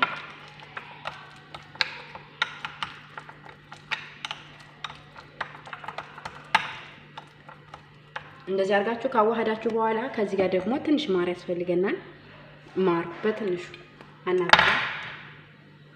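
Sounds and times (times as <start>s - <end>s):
spoon clinking against bowl: 0.0s - 8.5s.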